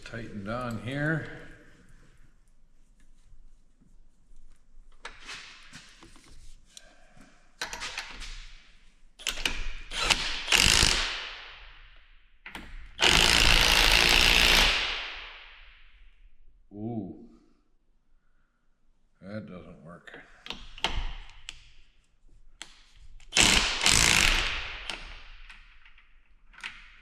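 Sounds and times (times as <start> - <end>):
impact wrench bursts: 9.2 - 11.3, 13.0 - 15.0, 23.3 - 25.2.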